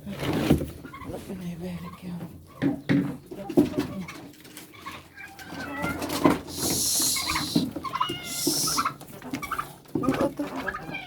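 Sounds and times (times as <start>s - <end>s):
birds chirping: 6.3s - 9.7s
bursts of hissing noise: 6.5s - 9.0s.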